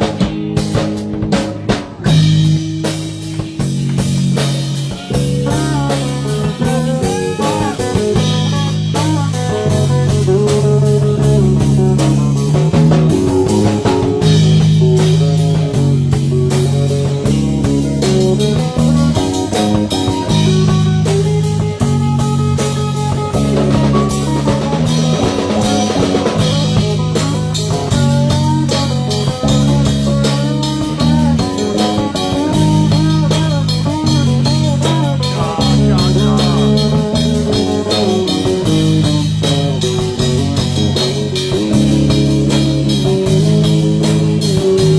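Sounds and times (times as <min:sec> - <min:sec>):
bass guitar: 0:00.0 - 0:44.9
drum kit: 0:00.0 - 0:44.9
electric guitar lines: 0:00.0 - 0:44.9.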